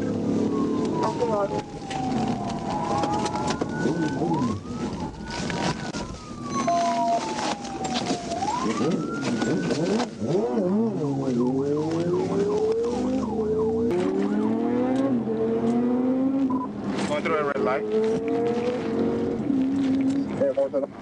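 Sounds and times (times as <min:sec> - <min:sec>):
road noise: 0:00.0 - 0:21.0
police siren wailing and yelping: 0:00.1 - 0:15.3
car engine accelerating: 0:08.7 - 0:20.8.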